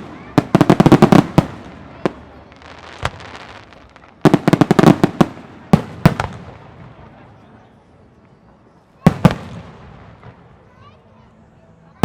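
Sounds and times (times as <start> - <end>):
firework crackling hiss: 0.0 - 7.0
firework bangs: 0.0 - 7.4, 9.0 - 10.8.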